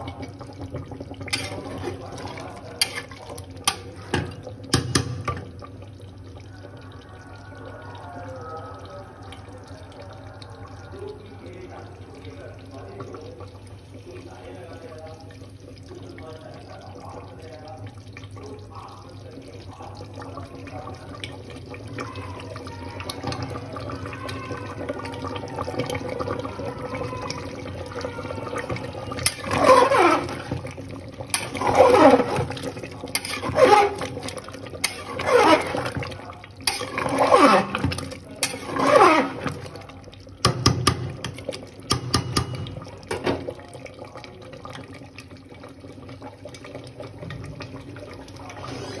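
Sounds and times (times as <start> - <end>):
pressure cooker whistling: 33.2 - 34.0, 34.8 - 35.9.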